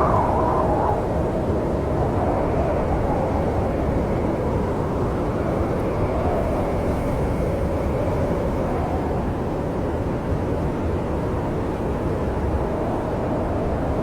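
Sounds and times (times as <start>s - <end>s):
snowstorm wind blowing: 0.0s - 14.0s.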